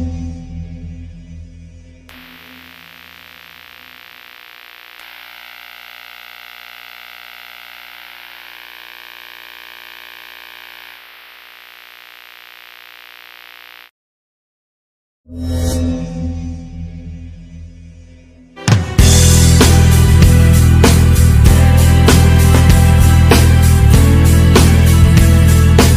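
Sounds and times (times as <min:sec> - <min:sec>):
electronic drone with flutter: 0:02.1 - 0:13.9
wavering electronic tone: 0:02.1 - 0:13.9.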